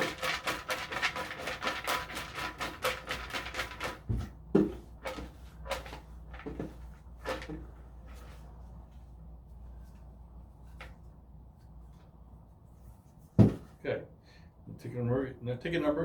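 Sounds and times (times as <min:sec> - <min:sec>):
raffle tickets rattling: 0:00.0 - 0:04.0.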